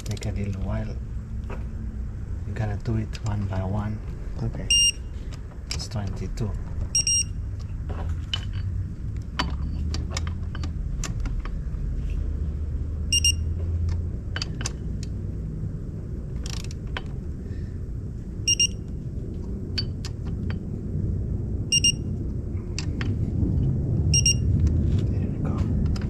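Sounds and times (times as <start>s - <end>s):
electronic beeping: 4.7s - 5.1s, 6.9s - 7.4s, 13.1s - 13.5s, 18.5s - 18.9s, 21.7s - 22.1s, 24.1s - 24.5s.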